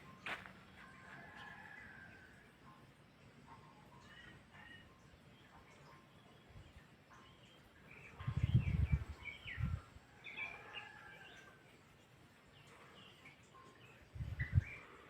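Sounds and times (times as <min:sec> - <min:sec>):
small birds chirping: 0:03.0 - 0:15.0.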